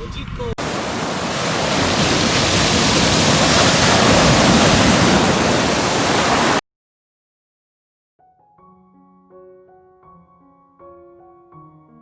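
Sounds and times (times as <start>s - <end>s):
rushing falling water: 0.6s - 6.6s.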